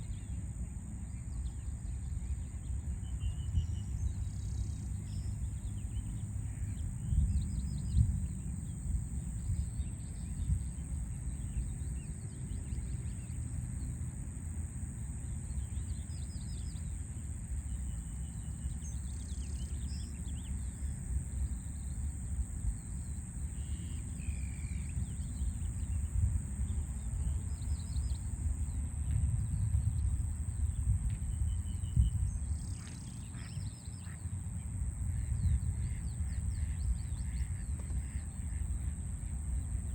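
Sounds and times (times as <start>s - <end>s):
low rumble of city noise: 0.0s - 39.9s.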